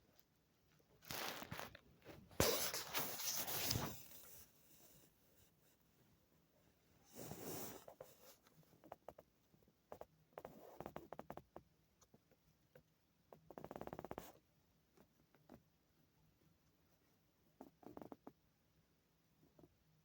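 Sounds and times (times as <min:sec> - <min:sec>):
scratching sounds: 0:01.0 - 0:04.4.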